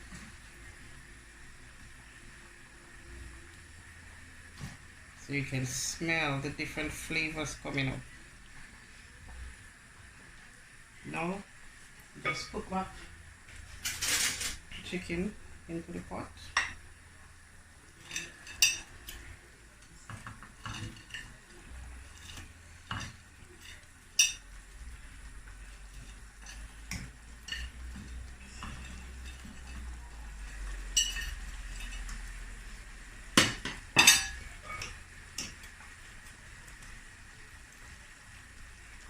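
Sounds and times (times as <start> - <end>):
spoon knocking and scraping a pot: 20.1 - 21.4, 30.9 - 32.2.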